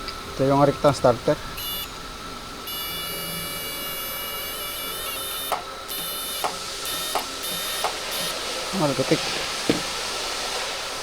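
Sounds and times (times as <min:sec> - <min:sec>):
small electric motor whining: 0:02.6 - 0:08.4.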